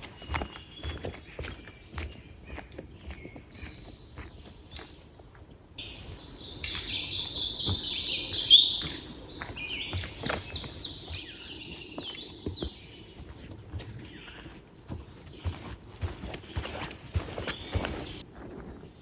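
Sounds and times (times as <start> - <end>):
songbird singing high notes: 5.8 - 12.6.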